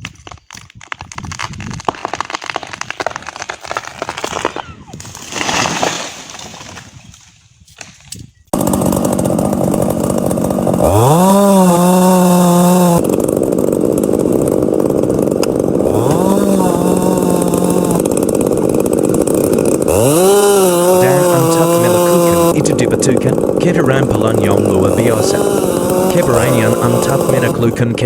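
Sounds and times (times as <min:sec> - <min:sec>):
chainsaw revving with rising whine: 0:08.6 - 0:28.0.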